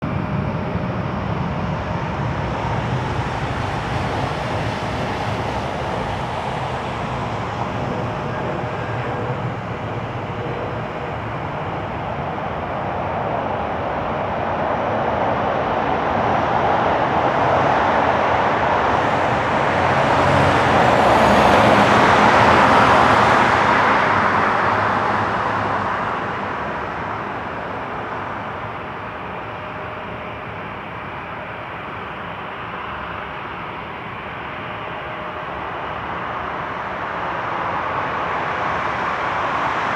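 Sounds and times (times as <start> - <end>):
jet engines rushing: 0.0 - 30.7.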